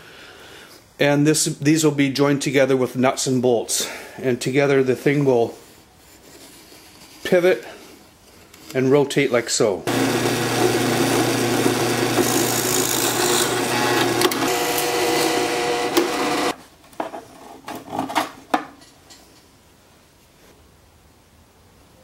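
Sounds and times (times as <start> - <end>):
electric drill boring into wood: 9.9 - 16.6.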